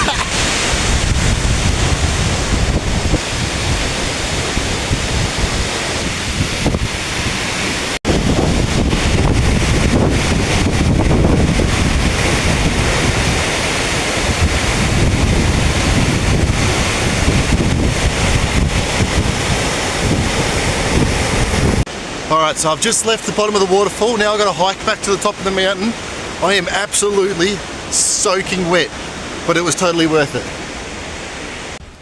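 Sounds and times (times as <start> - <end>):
wind buffeting microphone: 0.0 - 22.0
waterfall rushing: 0.0 - 31.8.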